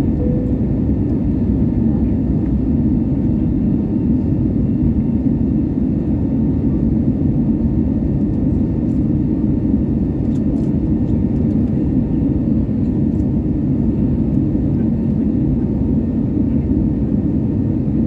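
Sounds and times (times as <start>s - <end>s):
jet engine rumble in cabin: 0.0s - 18.0s.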